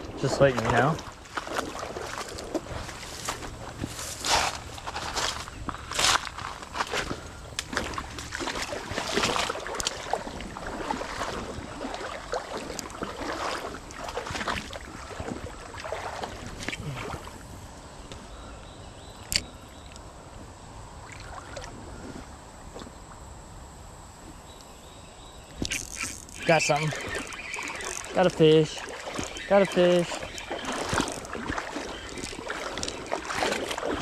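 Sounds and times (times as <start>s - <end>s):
footsteps through brush: 0.4s - 16.9s, 25.7s - 34.0s.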